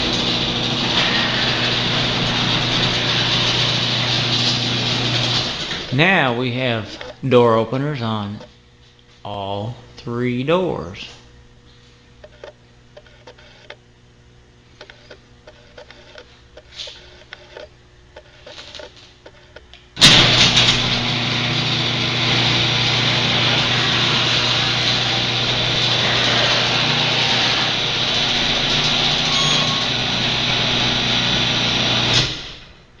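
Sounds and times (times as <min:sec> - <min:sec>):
garage door opener motor running: 0:00.0 - 0:08.2, 0:11.4 - 0:33.0.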